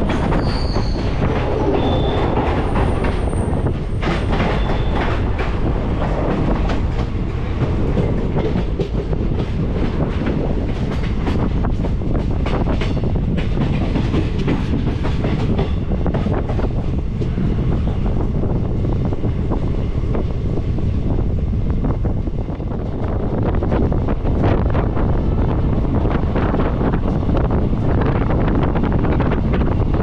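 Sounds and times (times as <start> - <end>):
train coach rumbling: 0.0 - 30.0.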